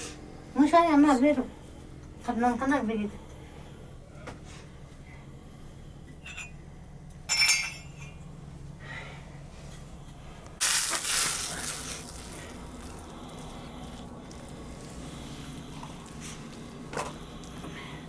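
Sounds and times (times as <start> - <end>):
low steady hum: 0.0 - 18.0
cooking sizzle hiss: 10.6 - 16.8.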